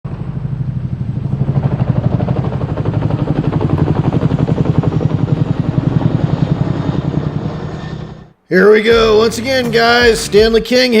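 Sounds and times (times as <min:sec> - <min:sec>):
dirt bike engine running: 0:00.1 - 0:08.1.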